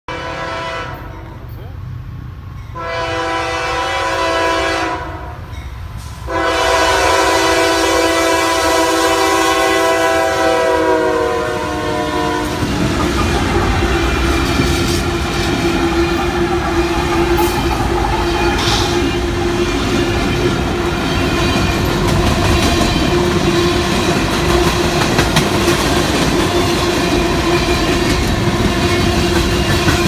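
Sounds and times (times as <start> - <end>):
locomotive air horn blasts: 0.1 - 1.3, 2.8 - 5.5, 6.2 - 20.3
passing train rumble: 0.1 - 30.0.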